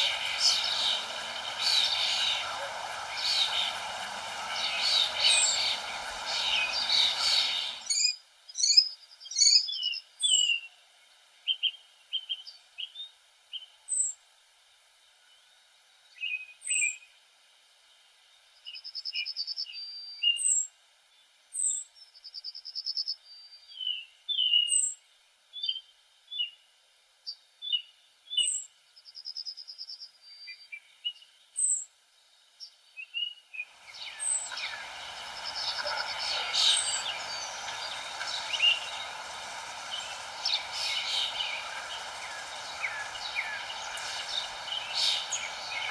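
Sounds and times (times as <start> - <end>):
buzzy bird trills: 0.0 - 8.0, 33.8 - 45.9
songbirds chirping: 0.0 - 8.1, 32.2 - 45.9.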